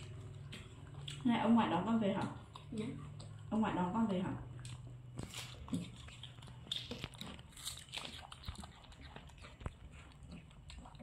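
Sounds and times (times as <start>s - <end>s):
apple crunching: 4.6s - 11.0s.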